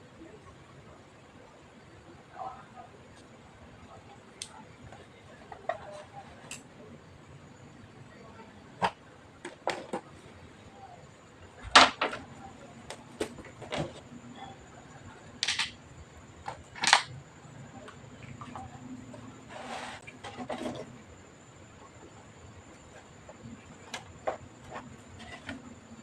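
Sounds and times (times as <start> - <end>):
hands clicking and knocking on parts: 15.4 - 15.8.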